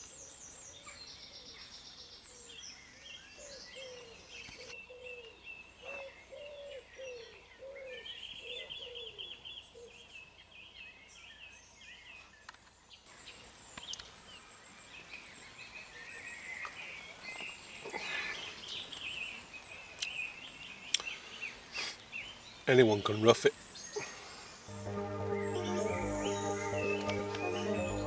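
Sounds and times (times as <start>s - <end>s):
low arching bird notes: 24.7s - 28.0s.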